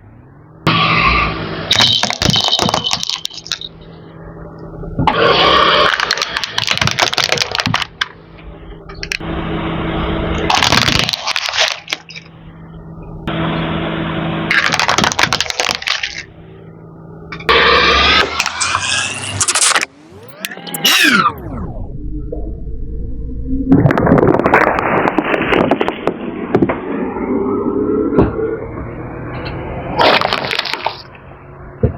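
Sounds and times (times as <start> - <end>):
engine hum: 0.0 - 31.9
tyres crushing plastic toys: 1.7 - 3.8, 5.0 - 8.2, 10.4 - 12.3, 14.5 - 16.3, 30.0 - 31.1.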